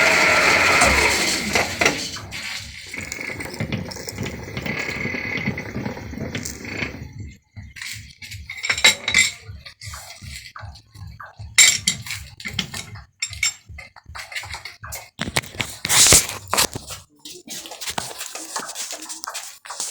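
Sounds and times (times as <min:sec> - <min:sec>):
machine thumping: 0:00.0 - 0:09.2
metal clinking and scraping: 0:00.0 - 0:09.5.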